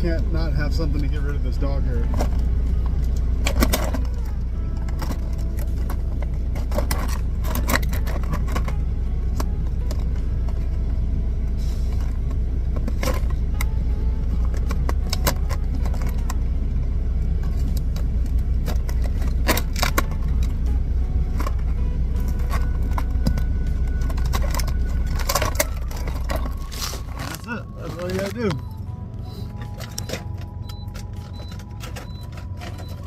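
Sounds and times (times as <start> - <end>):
truck diesel engine rumbling: 0.0 - 33.0
clicks and rattles of handling: 2.0 - 10.8, 14.4 - 16.4, 17.4 - 20.7, 21.3 - 28.6, 29.5 - 33.0.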